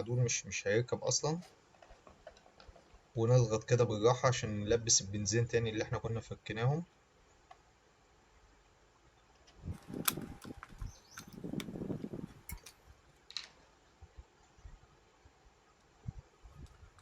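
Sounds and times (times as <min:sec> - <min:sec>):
plastic parts rubbing and scraping: 0:01.4 - 0:03.0, 0:09.5 - 0:13.5
sharp plastic clicks: 0:09.5 - 0:13.5.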